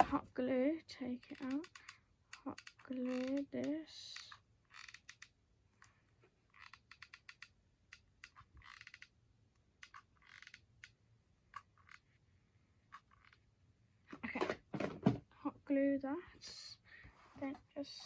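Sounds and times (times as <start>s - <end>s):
cardboard being handled: 0.0s - 0.3s
glue gun clicks and crackles: 1.2s - 12.1s.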